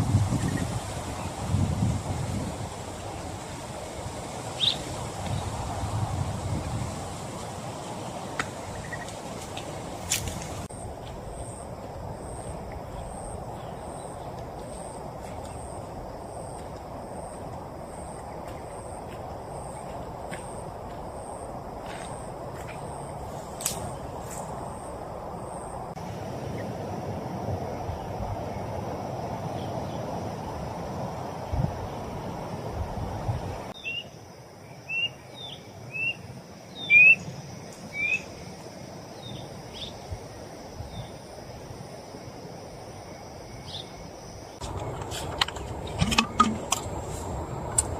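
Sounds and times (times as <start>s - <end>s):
rain hissing: 0.0s - 10.7s
insect chirping: 0.0s - 47.9s.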